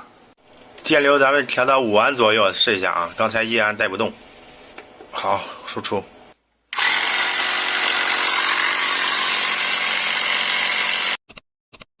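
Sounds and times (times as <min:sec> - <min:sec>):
air pump motor running: 0:06.7 - 0:11.2.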